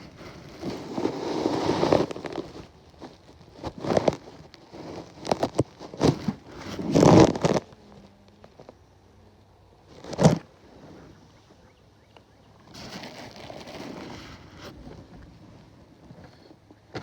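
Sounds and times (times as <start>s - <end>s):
fabric rustling against phone: 0.0s - 8.7s.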